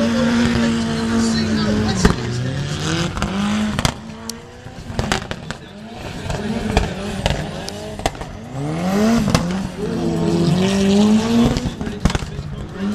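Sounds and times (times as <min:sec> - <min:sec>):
car engine revving hard: 0:00.0 - 0:12.9
sharp exhaust cracks: 0:00.3 - 0:09.8.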